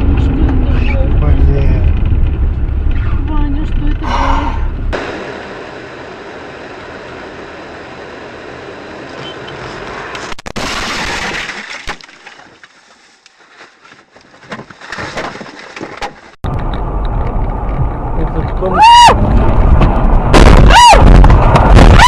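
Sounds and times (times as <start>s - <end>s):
road noise: 0.0s - 22.0s
car crash: 10.2s - 12.6s, 19.1s - 22.0s
glass breaking: 10.5s - 12.6s.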